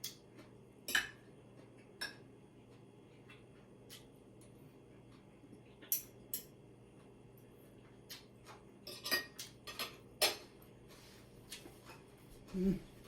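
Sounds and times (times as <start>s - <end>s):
utensils clinking on plates: 8.8s - 10.6s.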